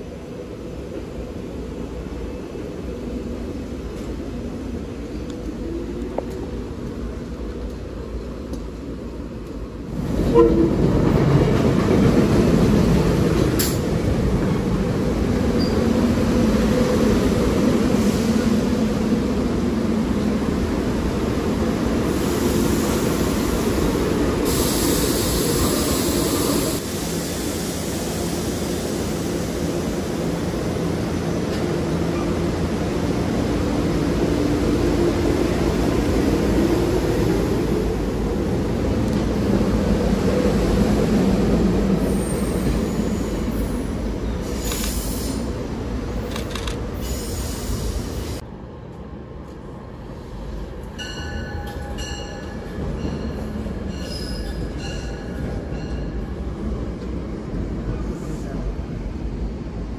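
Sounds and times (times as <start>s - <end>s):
hiss: 22.1s - 30.1s, 44.4s - 45.5s, 47.0s - 48.4s.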